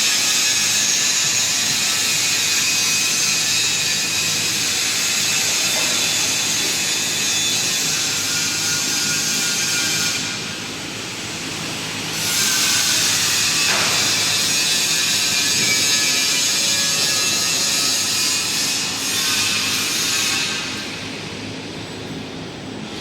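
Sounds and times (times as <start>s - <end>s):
harsh hiss of metalwork: 12.0s - 21.0s.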